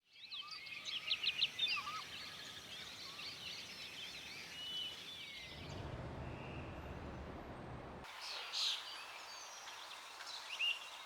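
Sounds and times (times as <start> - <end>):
steady low rumble: 5.5 - 8.1.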